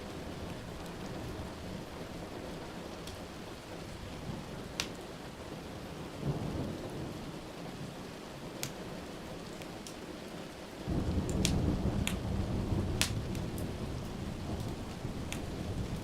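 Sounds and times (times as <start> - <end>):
steady rain: 0.0 - 16.0
low rumble of thunder: 6.0 - 8.0, 10.8 - 16.0.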